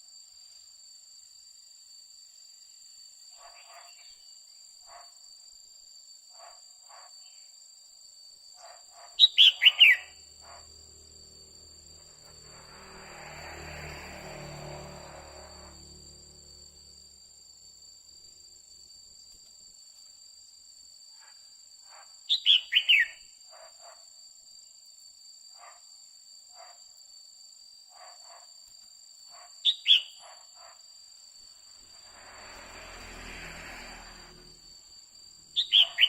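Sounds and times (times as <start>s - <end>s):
steady high-pitched whine: 10.0s - 19.2s, 31.2s - 36.0s.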